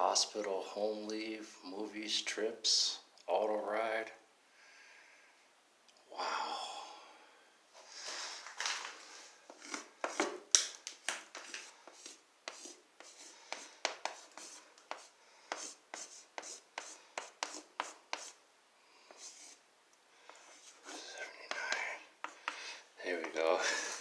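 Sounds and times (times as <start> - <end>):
chalk writing on a board: 11.4 - 18.4, 19.1 - 19.6, 20.3 - 22.6.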